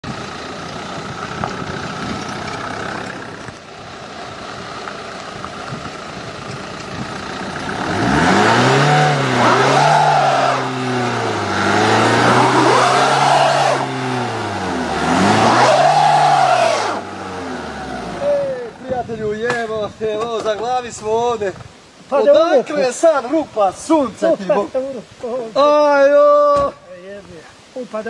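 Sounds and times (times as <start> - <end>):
car engine revving: 7.2 - 18.5.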